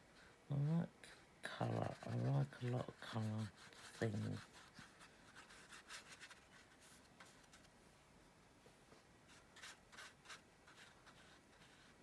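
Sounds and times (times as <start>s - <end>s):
paintbrush strokes on paper: 1.6s - 7.8s, 9.2s - 12.0s.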